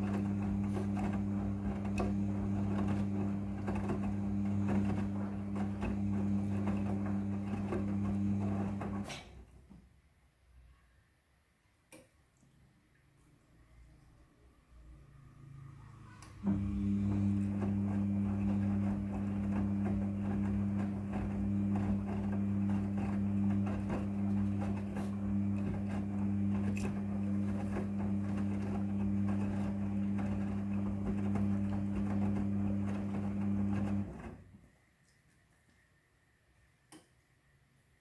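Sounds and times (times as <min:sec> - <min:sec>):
washing machine humming: 0:00.0 - 0:09.6, 0:14.9 - 0:34.6.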